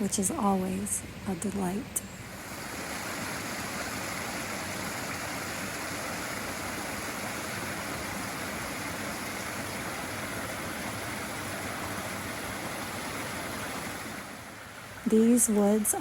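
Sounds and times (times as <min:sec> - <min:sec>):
flowing stream rushing: 0:02.3 - 0:15.2.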